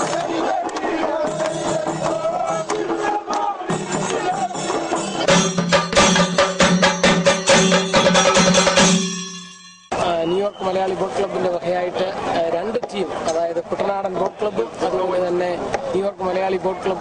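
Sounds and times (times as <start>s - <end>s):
folk music with singing: 0.0s - 5.3s
fast even percussion beat: 0.0s - 10.2s.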